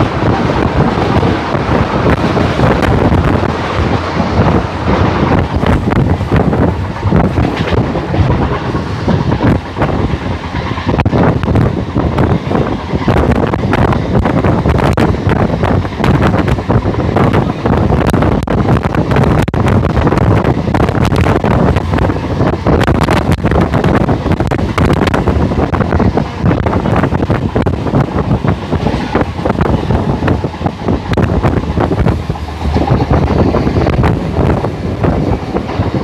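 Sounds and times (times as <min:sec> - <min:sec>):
train coaches rumbling: 0:00.0 - 0:36.0
wind buffeting microphone: 0:00.0 - 0:36.0.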